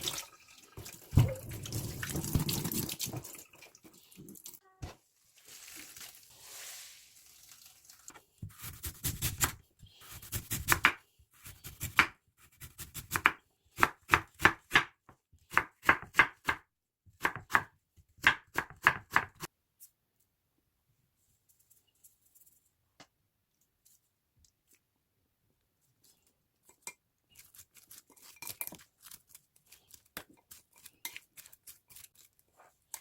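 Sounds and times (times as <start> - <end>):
knife chopping on cutting board: 8.4 - 14.9, 15.6 - 16.6.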